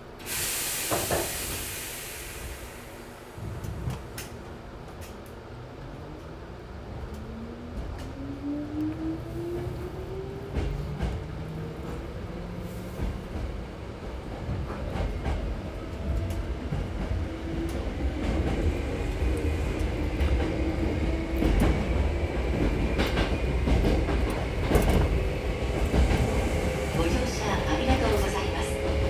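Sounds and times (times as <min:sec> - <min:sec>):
electric train rumble: 0:00.0 - 0:29.0.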